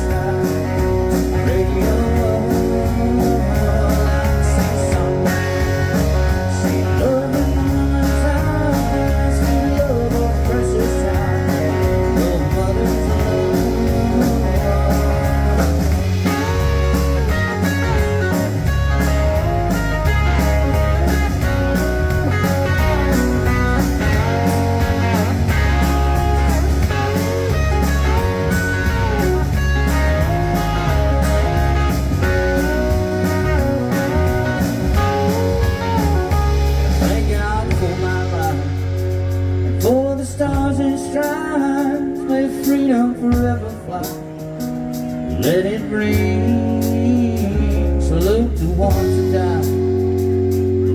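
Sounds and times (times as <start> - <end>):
country band playing: 0.0 - 50.9
lead guitar solo: 14.4 - 38.4.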